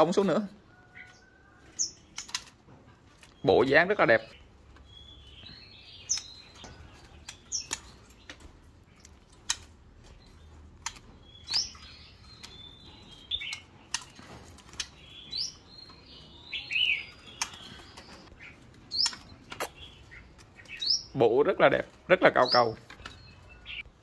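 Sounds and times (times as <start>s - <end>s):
bird chirping: 0.0s - 24.0s
sharp clicks: 7.2s - 8.4s, 9.0s - 9.7s.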